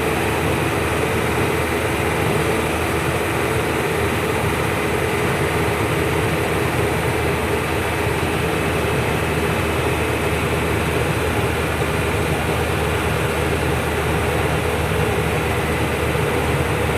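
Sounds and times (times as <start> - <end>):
truck engine and road noise: 0.0 - 16.9.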